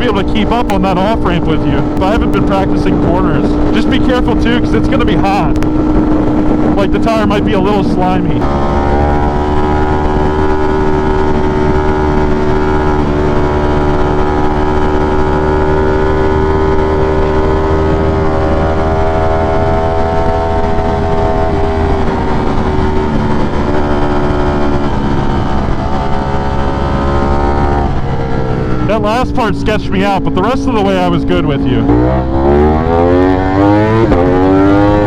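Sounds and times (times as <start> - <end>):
motorcycle engine running: 0.0 - 35.0
wind and road rumble: 0.0 - 35.0.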